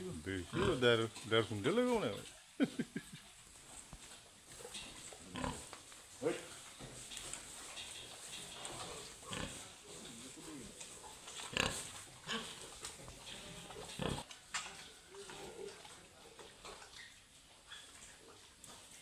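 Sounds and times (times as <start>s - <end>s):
pigs grunting: 0.0s - 3.4s, 4.5s - 19.0s
pig squeaks: 16.6s - 18.3s.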